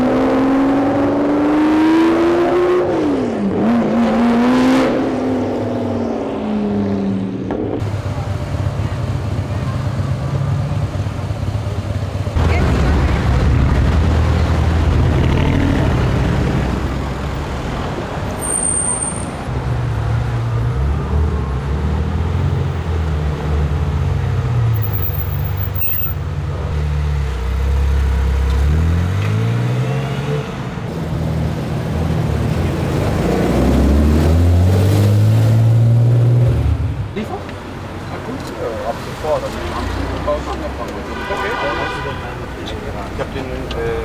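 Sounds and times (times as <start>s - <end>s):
street traffic noise: 0.0s - 44.0s
car engines accelerating away: 19.4s - 25.8s, 26.4s - 41.1s.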